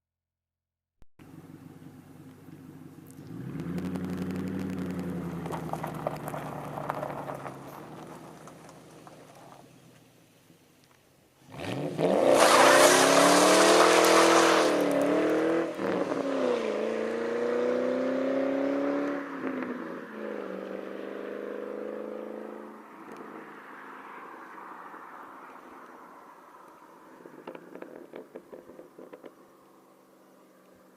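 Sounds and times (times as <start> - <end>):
car engine accelerating: 1.2 - 9.7, 11.4 - 23.6
tire squeal: 12.2 - 15.0.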